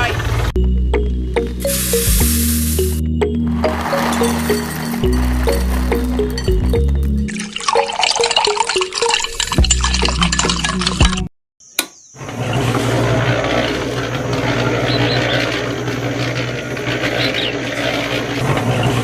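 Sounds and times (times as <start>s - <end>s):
noisy hiss: 1.6s - 3.0s
small motor humming: 1.6s - 3.0s, 12.5s - 19.0s.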